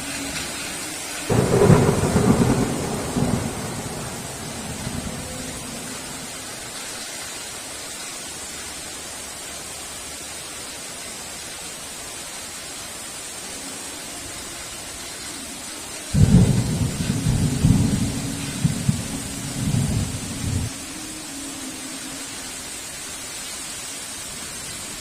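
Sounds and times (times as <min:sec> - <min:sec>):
heavy rain hiss: 0:00.0 - 0:25.0
loud low thunder rumble: 0:01.3 - 0:06.5, 0:16.2 - 0:20.8.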